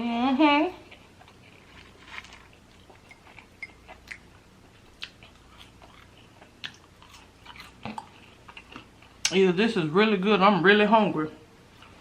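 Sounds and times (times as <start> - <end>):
person chewing with mouth noises: 0.8 - 9.4.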